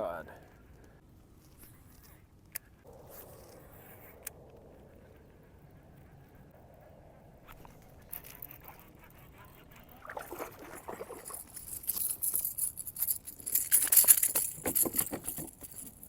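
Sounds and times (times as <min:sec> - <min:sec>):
fish splashing at water surface: 0:10.0 - 0:12.0.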